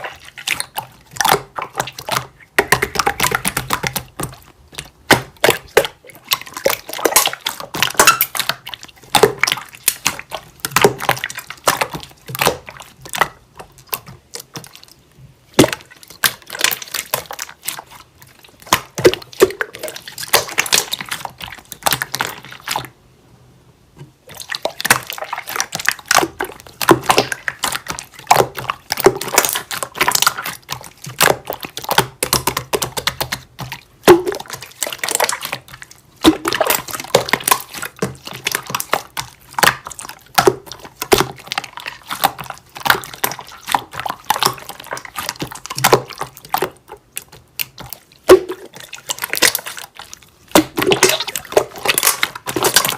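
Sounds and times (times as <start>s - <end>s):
wet clicking and squishing: 0.0s - 23.0s, 24.0s - 52.9s.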